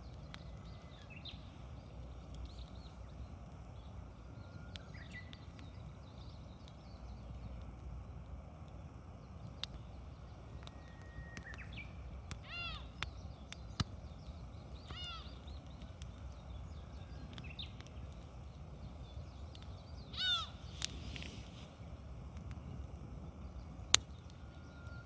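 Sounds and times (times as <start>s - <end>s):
campfire crackling and popping: 0.0s - 25.0s
low steady rumble: 0.0s - 25.0s
bird calling: 10.3s - 18.2s, 18.9s - 21.4s.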